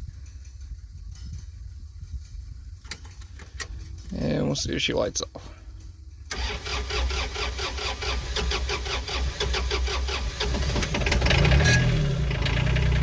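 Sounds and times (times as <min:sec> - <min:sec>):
diesel engine cranking and running: 0:06.3 - 0:13.0.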